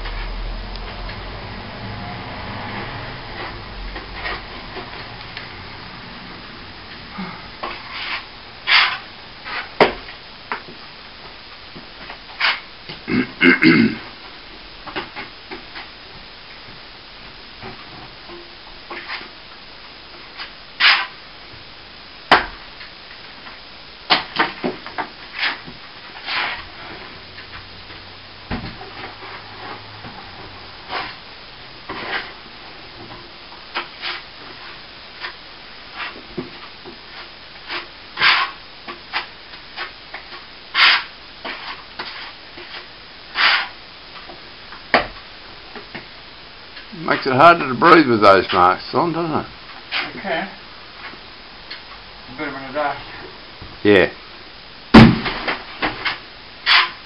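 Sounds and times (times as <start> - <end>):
hand tool scraping plaster: 7.7 - 9.7, 43.4 - 43.8.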